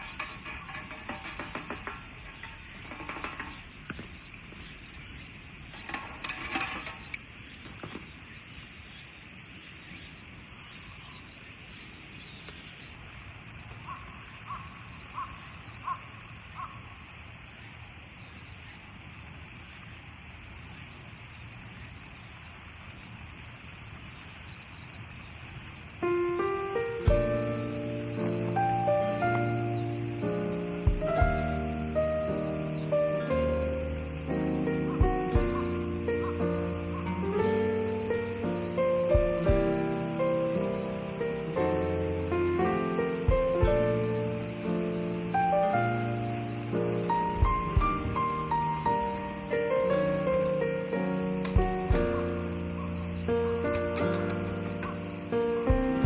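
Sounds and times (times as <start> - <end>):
clicks and crackles: 0.0 - 4.2, 5.7 - 8.0, 53.6 - 55.1
crickets trilling: 0.0 - 56.0.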